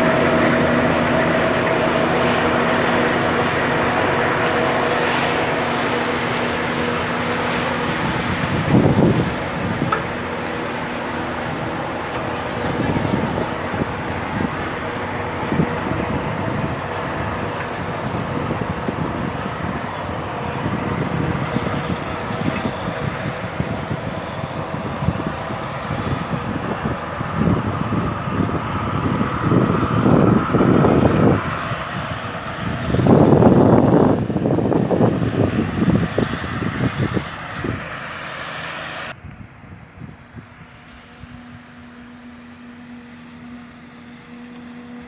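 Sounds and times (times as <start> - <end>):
harvester machine drone: 0.0 - 45.0.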